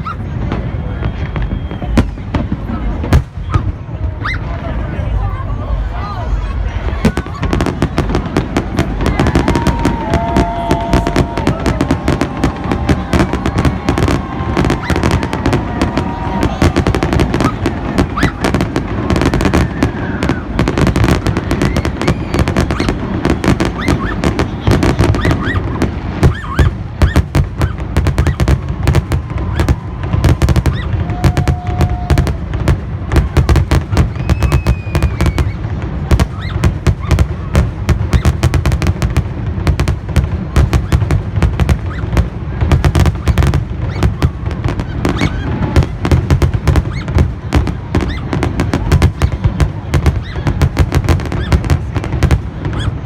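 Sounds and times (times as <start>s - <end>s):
fireworks banging: 0.0s - 5.8s, 6.8s - 53.0s.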